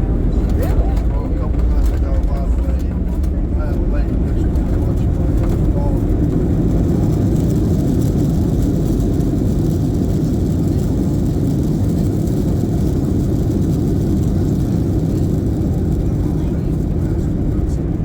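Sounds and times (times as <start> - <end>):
airplane cabin engine rumble: 0.0 - 18.0.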